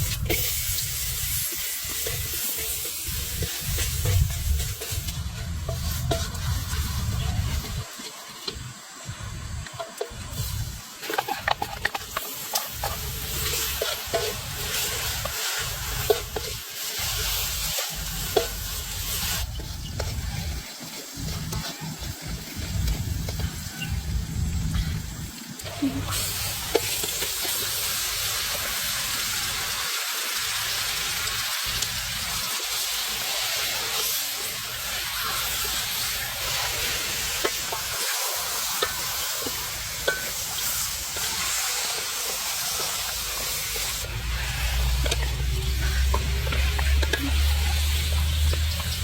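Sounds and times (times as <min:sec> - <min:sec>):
food sizzling in hot oil: 0:00.0 - 0:49.0
low rumble: 0:44.0 - 0:49.0.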